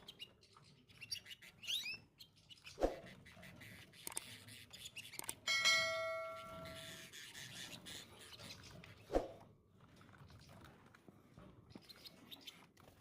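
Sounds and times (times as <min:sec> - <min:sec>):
faint clicks: 0:04.0 - 0:04.3
bell-like chime: 0:05.5 - 0:07.0.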